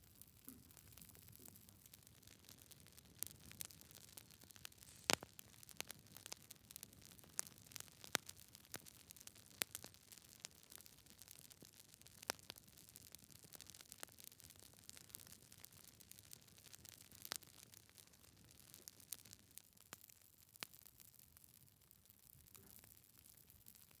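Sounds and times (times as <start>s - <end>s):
logs crackling and popping: 0.1s - 21.5s
fireplace fire hissing: 4.6s - 5.7s.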